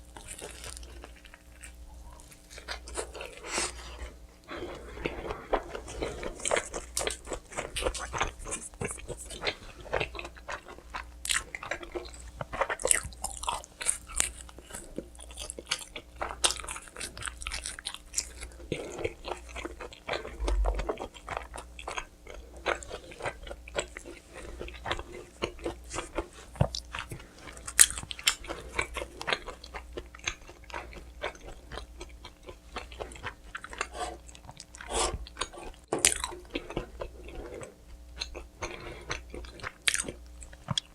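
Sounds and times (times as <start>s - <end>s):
biting and chewing pizza: 0.0s - 40.9s.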